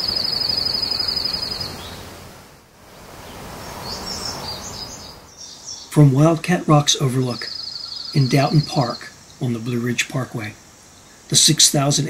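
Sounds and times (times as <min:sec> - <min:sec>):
high bird chirps: 0:00.0 - 0:02.0, 0:03.2 - 0:06.0, 0:07.0 - 0:09.4
songbird rapid trill: 0:00.0 - 0:02.0, 0:03.2 - 0:12.0
outdoor background hiss: 0:00.0 - 0:12.0.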